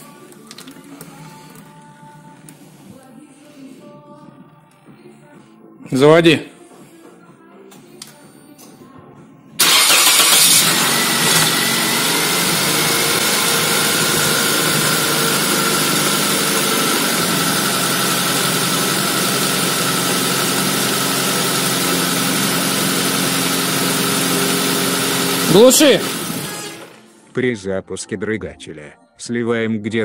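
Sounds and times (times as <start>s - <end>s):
car engine starting and idling: 9.6s - 27.1s.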